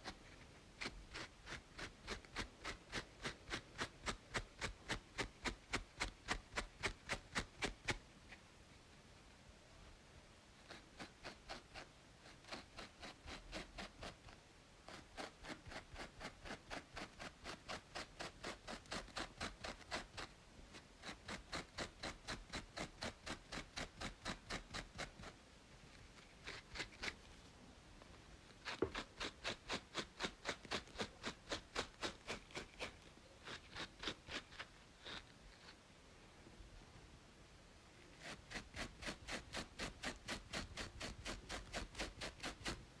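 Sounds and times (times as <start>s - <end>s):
rapid scratching on scalp: 0.0s - 8.0s, 10.6s - 25.4s, 26.2s - 27.2s, 28.6s - 35.8s, 38.2s - 42.8s.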